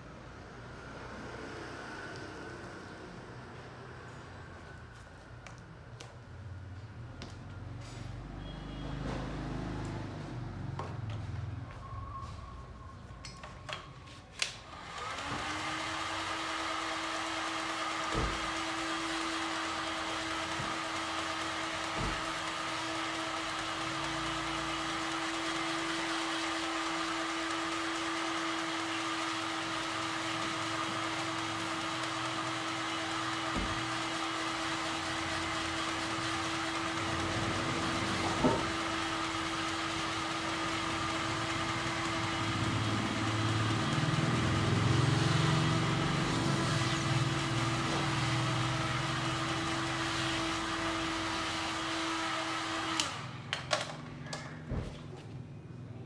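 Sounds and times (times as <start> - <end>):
small electric motor humming: 14.7 - 53.3.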